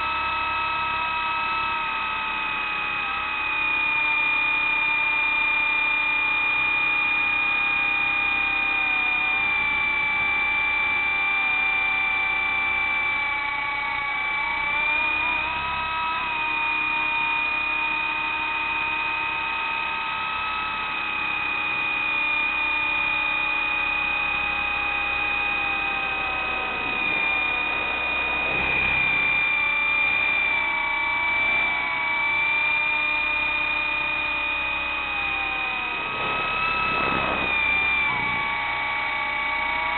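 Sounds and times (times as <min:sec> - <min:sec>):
model helicopter rotor whine: 0:00.0 - 0:39.9.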